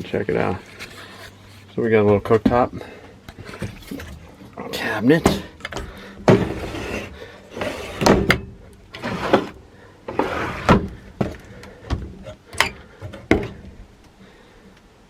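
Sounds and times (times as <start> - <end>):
scraping and rattling: 0.0 - 13.7
cabinet doors opening and shutting: 5.2 - 13.7.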